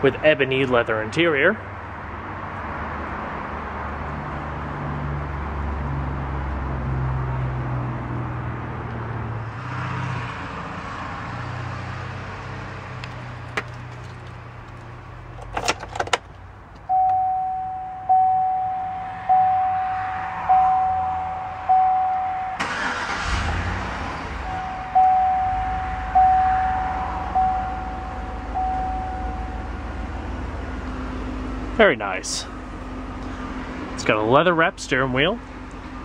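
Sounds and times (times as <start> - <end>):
car engine idling: 12.7 - 36.0
dashboard warning chime: 16.8 - 23.2, 24.4 - 30.1.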